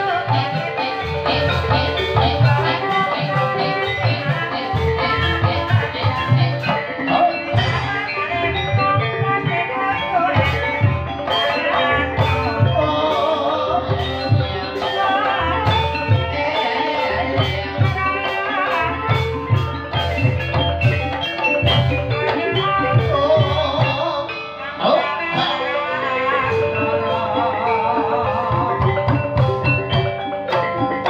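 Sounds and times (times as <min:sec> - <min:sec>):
steady drum beat: 0:00.0 - 0:08.1, 0:26.5 - 0:30.9
ringing metallophone melody: 0:00.0 - 0:31.0.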